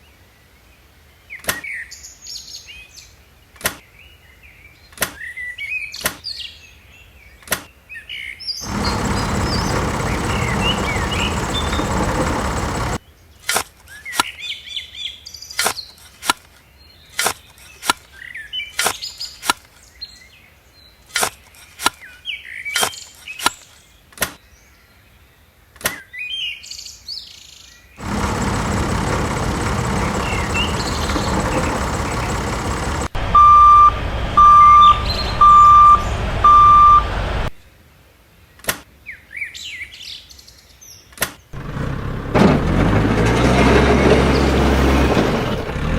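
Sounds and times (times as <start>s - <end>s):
small birds chirping: 8.0s - 13.3s, 28.0s - 33.2s, 34.6s - 36.3s
reversing alarm beeps: 33.2s - 37.2s.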